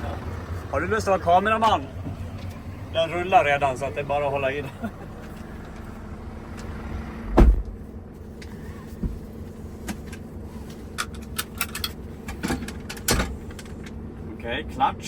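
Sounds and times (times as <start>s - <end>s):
diesel engine idling: 0.0s - 15.0s
heavy thump: 7.2s - 7.8s.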